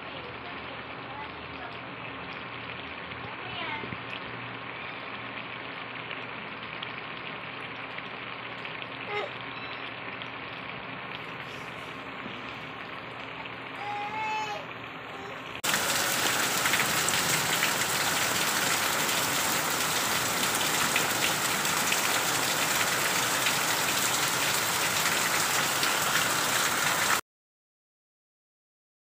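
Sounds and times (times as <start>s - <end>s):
brief high tone: 9.2s - 10.0s
heavy rain pouring: 11.2s - 27.2s.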